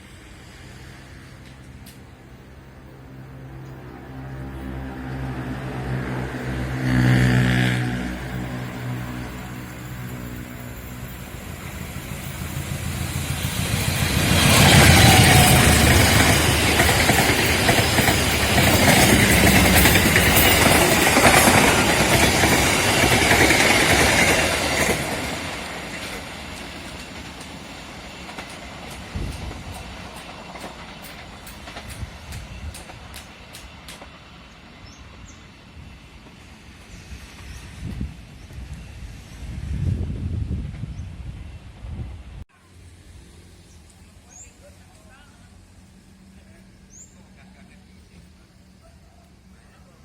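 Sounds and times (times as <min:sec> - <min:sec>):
diesel passenger train passing: 0:00.0 - 0:50.0
train wheel clicks: 0:08.3 - 0:34.3.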